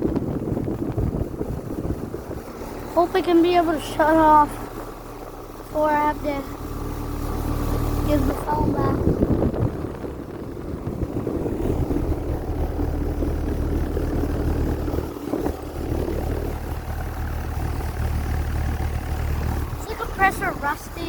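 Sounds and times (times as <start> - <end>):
air conditioner unit humming: 0.0 - 21.0.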